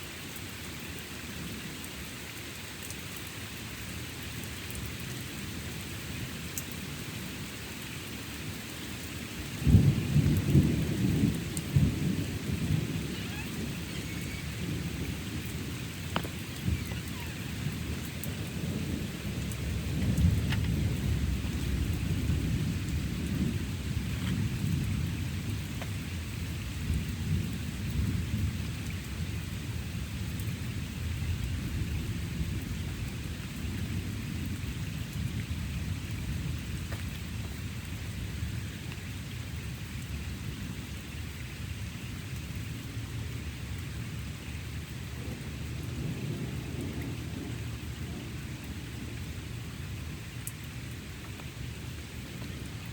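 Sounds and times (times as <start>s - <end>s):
steady rain: 0.0s - 52.9s
thunder rumbling: 9.5s - 38.4s, 44.0s - 51.0s.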